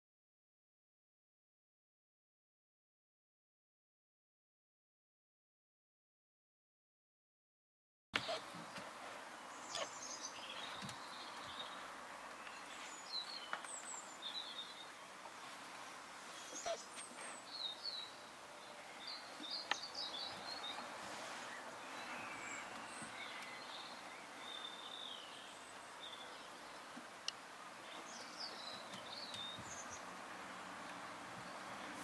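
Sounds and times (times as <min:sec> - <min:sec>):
steady hiss: 0:08.2 - 0:32.0
high-pitched squeaks and chirps: 0:16.4 - 0:17.4.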